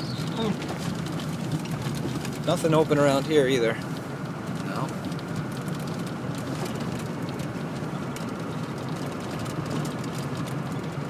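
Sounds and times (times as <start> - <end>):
road and engine noise in vehicle: 0.0 - 11.0.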